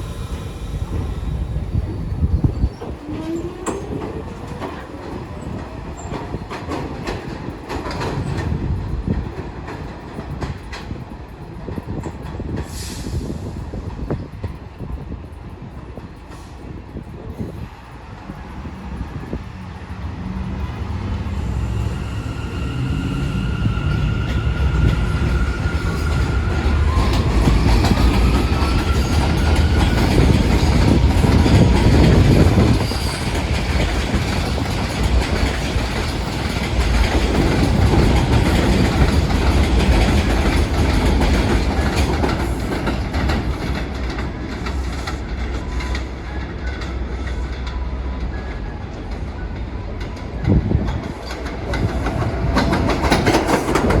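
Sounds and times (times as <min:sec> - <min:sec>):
subway train wheels clattering: 0:00.0 - 0:54.0
train rumble: 0:00.0 - 0:54.0
high-pitched wheel squealing: 0:20.3 - 0:33.3.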